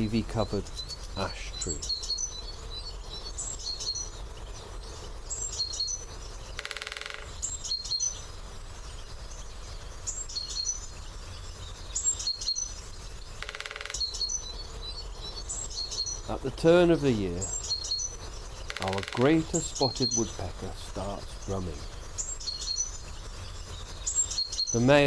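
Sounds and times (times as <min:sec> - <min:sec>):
small birds singing: 0:00.0 - 0:25.0
woodpecker drumming on wood: 0:04.9 - 0:08.3, 0:12.1 - 0:25.0.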